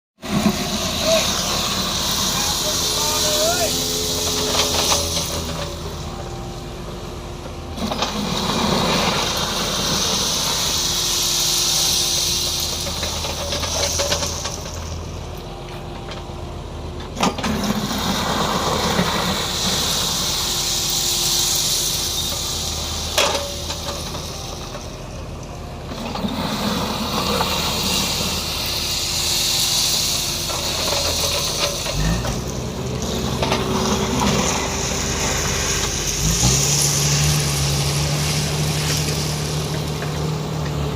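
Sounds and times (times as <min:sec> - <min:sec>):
diesel engine running: 0:00.2 - 0:40.9
high hydraulic hiss: 0:19.4 - 0:24.7.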